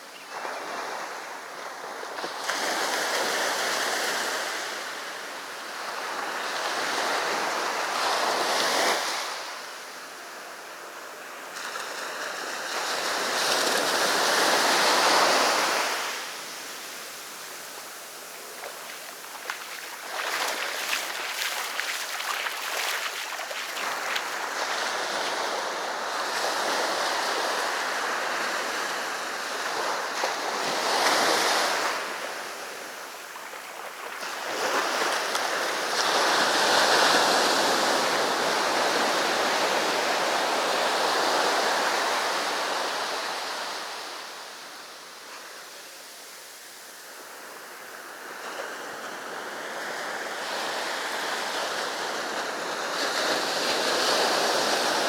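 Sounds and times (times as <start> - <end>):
sea surf breaking on shore: 11.8 - 44.4.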